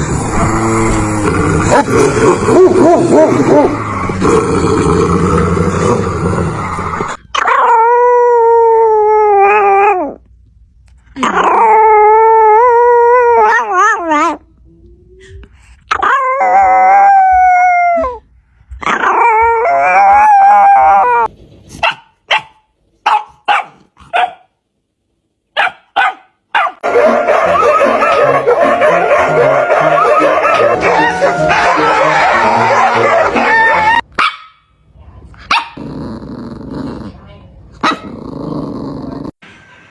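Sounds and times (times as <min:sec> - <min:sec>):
dog howling: 0:07.3 - 0:10.2, 0:11.2 - 0:14.4, 0:15.9 - 0:18.2, 0:18.9 - 0:21.3, 0:26.8 - 0:34.0
dog yipping: 0:25.6 - 0:26.8, 0:32.8 - 0:34.6.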